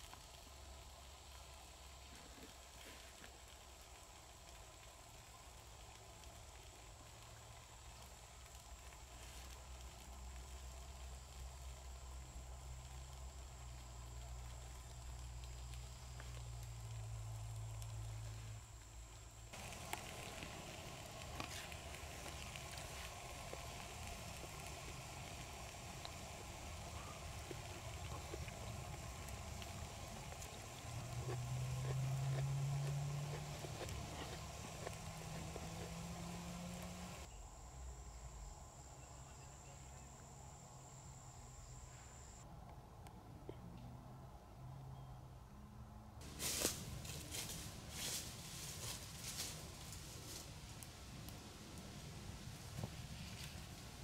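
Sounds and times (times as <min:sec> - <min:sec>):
campfire crackling and popping: 0:00.0 - 0:37.3
even hiss: 0:00.0 - 0:42.4
insect trilling: 0:08.8 - 0:42.4.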